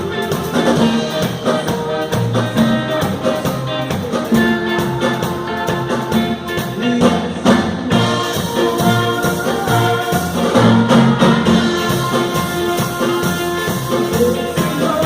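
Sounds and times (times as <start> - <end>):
brass horns playing melody: 0.0 - 15.0
steady drum beat: 0.0 - 15.0.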